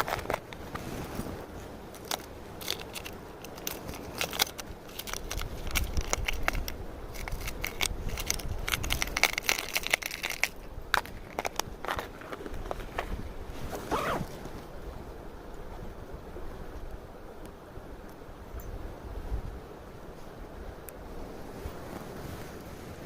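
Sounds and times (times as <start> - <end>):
rustling handling noise: 0.0 - 14.8.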